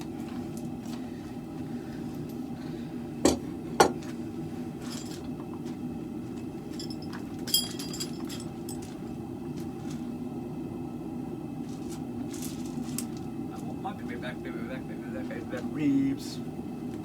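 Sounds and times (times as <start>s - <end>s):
steady low hum: 0.0s - 17.0s
clinking ringing metal: 6.8s - 9.0s.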